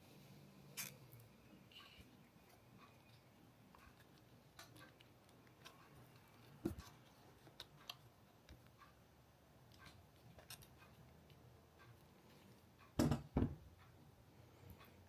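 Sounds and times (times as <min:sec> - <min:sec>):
faint clicks and light taps: 0:01.1 - 0:13.0.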